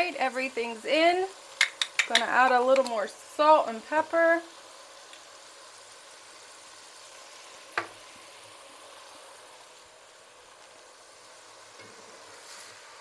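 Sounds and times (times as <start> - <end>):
food sizzling in a pot: 0.0 - 13.0
spatula stirring in a pot: 11.7 - 13.0.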